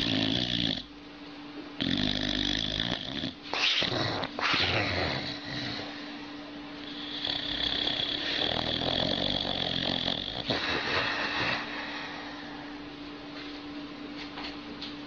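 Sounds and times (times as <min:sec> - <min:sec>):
dog snoring: 0:00.0 - 0:00.9, 0:01.8 - 0:06.2, 0:06.8 - 0:12.8
faint steady hum: 0:00.0 - 0:15.0.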